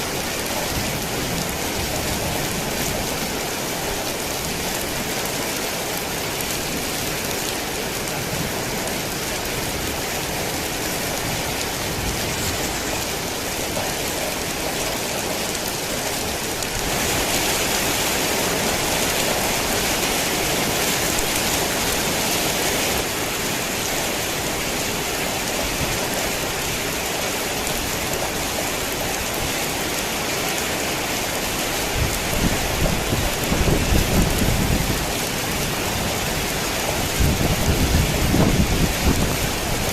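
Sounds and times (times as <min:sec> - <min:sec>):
heavy rain falling: 0:00.0 - 0:39.9
low rumble of thunder: 0:32.0 - 0:39.9.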